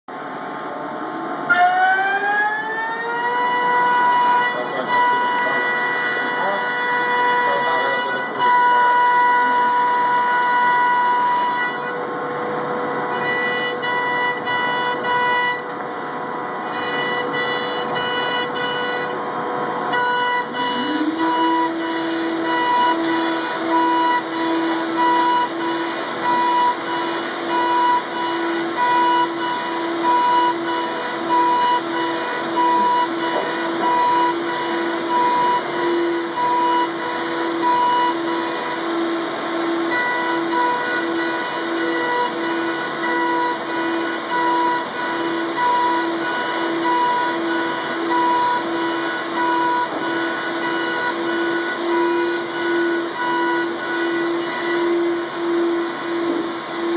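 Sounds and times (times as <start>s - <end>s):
router spindle motors whining: 0.1s - 56.9s.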